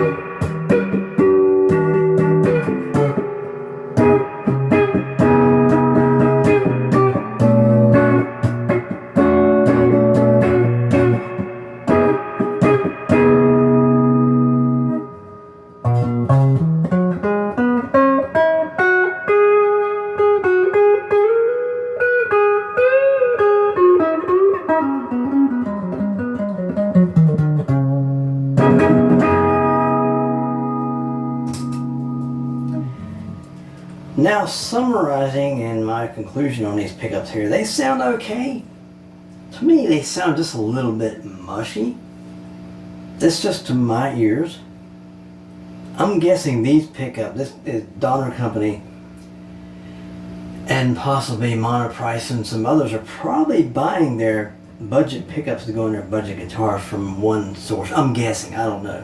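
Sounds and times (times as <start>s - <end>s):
electric guitar lead with bends: 0.0s - 34.1s
electric guitar strumming chords: 0.0s - 59.0s.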